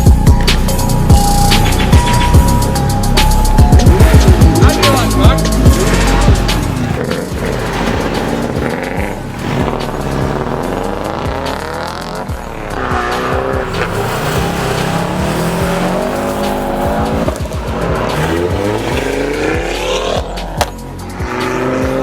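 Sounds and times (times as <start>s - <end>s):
car engine revving: 0.0s - 22.0s
tyres squealing: 3.6s - 20.9s.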